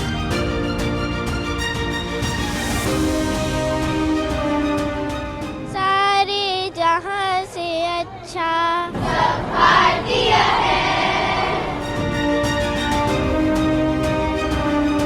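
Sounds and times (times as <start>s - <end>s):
background music: 0.0s - 8.0s, 11.6s - 15.0s
child singing: 5.7s - 11.6s.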